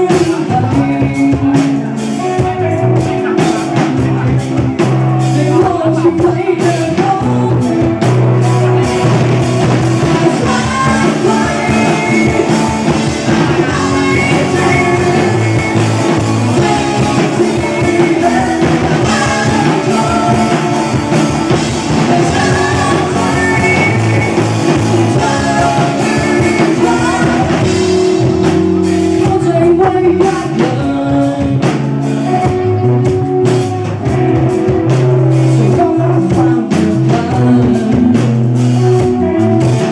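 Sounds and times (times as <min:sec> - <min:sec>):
person singing: 0:00.0 - 0:39.9
rock band playing live: 0:00.0 - 0:39.9.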